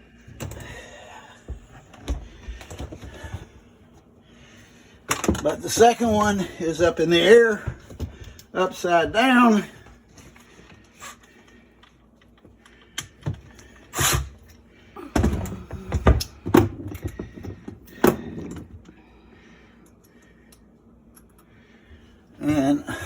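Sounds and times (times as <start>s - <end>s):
knocks and clunks of metal parts: 5.1s - 6.4s, 15.1s - 18.9s.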